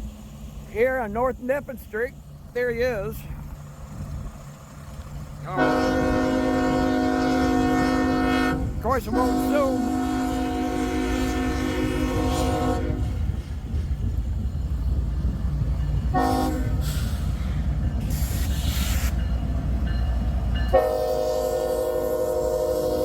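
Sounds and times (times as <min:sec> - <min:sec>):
passing train rumble: 0:00.0 - 0:23.0
locomotive horn blasts: 0:05.5 - 0:13.3, 0:16.1 - 0:17.1, 0:20.7 - 0:23.0.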